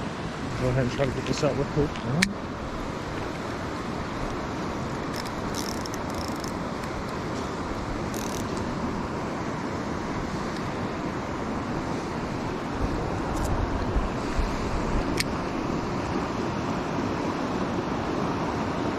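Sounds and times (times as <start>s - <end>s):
creek water rushing: 0.0s - 18.9s
faint high clicks: 5.0s - 7.2s, 8.1s - 8.7s.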